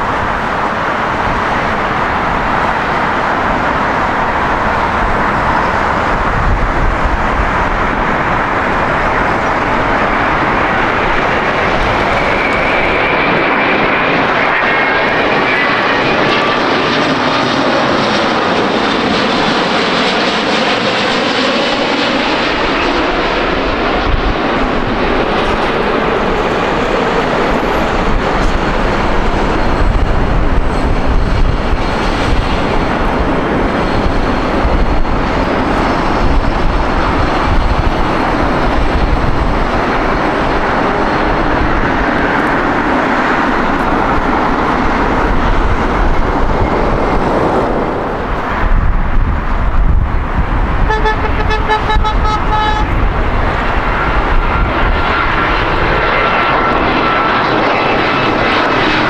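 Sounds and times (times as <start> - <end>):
jet engine roaring: 0.0 - 59.0
car horn honking: 50.9 - 53.0.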